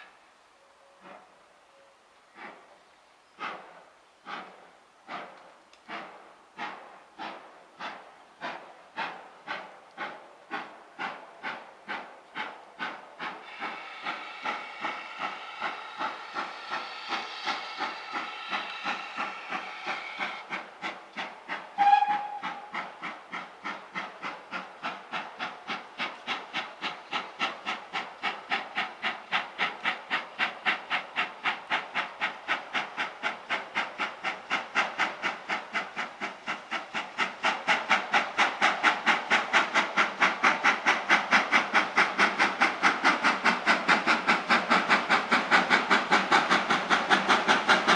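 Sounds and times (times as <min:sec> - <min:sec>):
steam locomotive chuffing: 0:00.0 - 0:47.9
steam whistle blast: 0:21.8 - 0:22.7.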